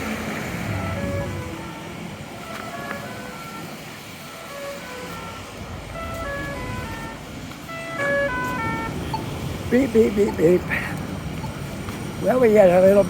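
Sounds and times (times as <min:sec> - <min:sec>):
city street noise: 0:00.0 - 0:13.0
electronic beeping melody: 0:00.6 - 0:02.0, 0:07.8 - 0:10.7.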